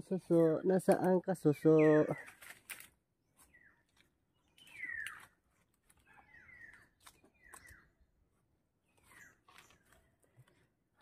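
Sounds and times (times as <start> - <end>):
bird calling: 1.4 - 2.6, 3.4 - 8.1, 8.8 - 10.2.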